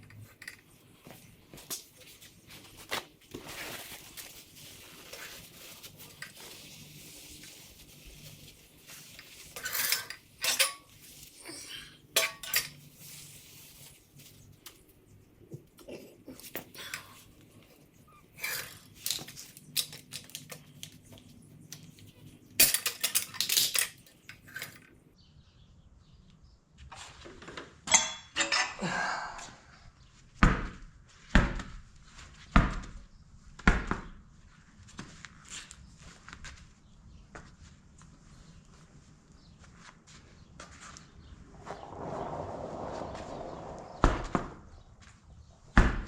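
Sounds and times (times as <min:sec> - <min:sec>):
metal tools clanking on wheel rim: 0:09.6 - 0:11.1, 0:12.2 - 0:12.9, 0:27.9 - 0:28.8.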